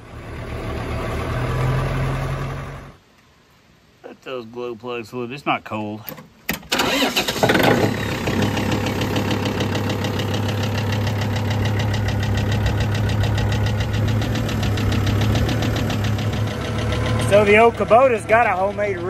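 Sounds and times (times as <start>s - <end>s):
diesel engine idling: 0.0s - 3.0s, 6.9s - 19.0s
tractor engine cranking: 6.1s - 19.0s.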